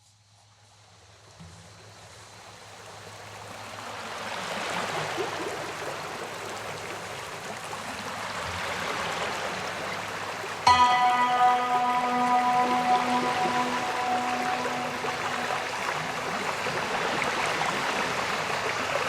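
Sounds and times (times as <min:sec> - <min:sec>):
music with struck chord: 0:10.7 - 0:17.9.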